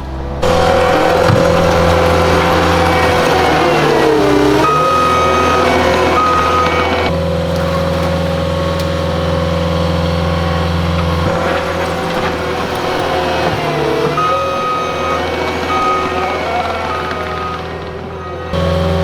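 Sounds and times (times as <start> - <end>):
heavy equipment engine running: 0.0 - 19.0
backup alarm beeping: 0.4 - 7.2, 12.8 - 19.0.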